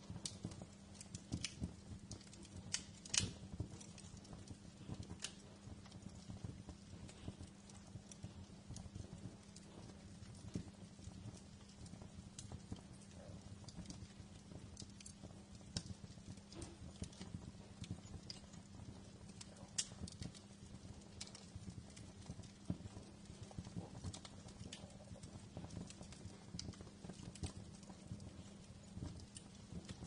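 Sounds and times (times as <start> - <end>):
low steady hum: 0.0 - 30.0
wood fire crackling in fireplace: 0.0 - 30.0.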